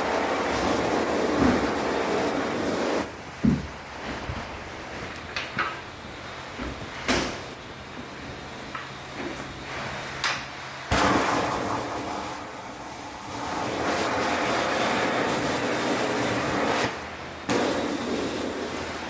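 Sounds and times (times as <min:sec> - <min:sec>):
high-pressure water spray: 0:10.9 - 0:19.0.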